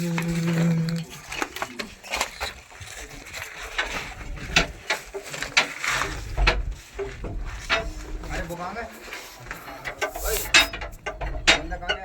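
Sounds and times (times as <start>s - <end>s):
irregular sharp clicks and knocks: 3.4s - 12.0s.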